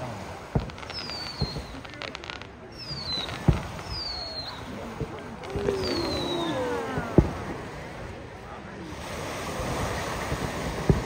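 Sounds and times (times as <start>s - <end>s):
fireworks booming: 0.0s - 11.0s
fireworks crackling: 0.0s - 11.0s
high falling whistle: 5.6s - 6.7s.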